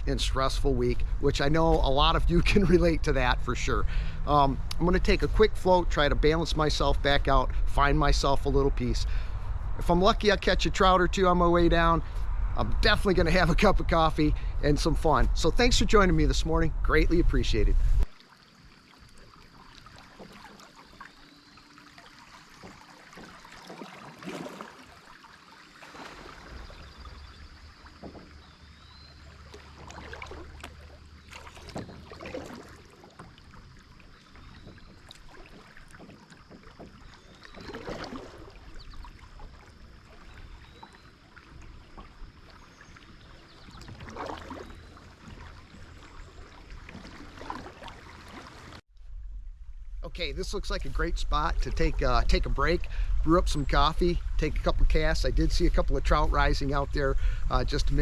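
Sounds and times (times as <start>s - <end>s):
flowing water: 0.0s - 58.0s
paddle splashing in water: 17.8s - 58.0s.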